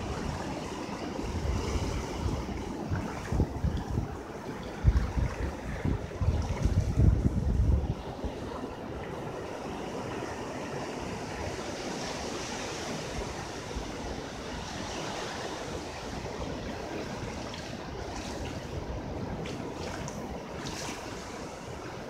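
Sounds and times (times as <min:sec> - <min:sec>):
ocean waves rushing: 0:07.9 - 0:22.0.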